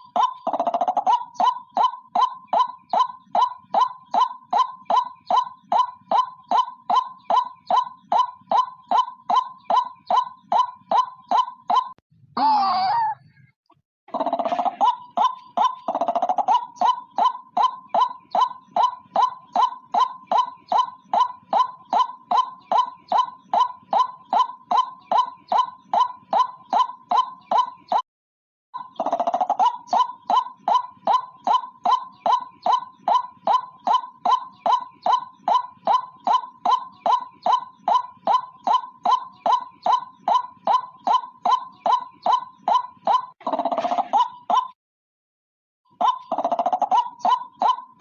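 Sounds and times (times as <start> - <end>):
waterhen calling harsh notes: 0.0 - 13.3, 14.2 - 28.0, 28.8 - 44.7, 45.9 - 48.0
waterhen calling: 28.8 - 44.7.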